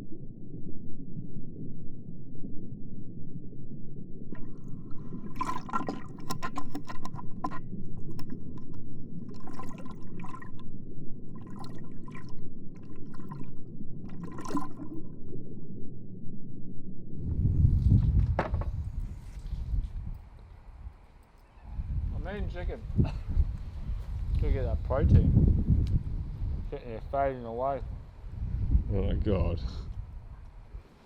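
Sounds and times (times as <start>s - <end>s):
bubbling crackle: 0.0s - 17.6s
water rushing: 4.3s - 8.4s, 9.3s - 10.6s, 14.1s - 15.1s
low water surge: 4.3s - 15.8s.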